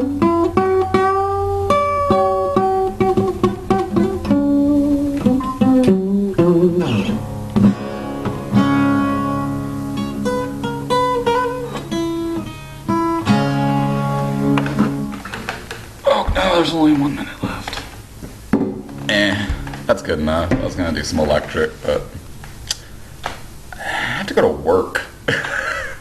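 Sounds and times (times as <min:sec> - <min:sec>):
acoustic guitar playing: 0:00.0 - 0:23.7.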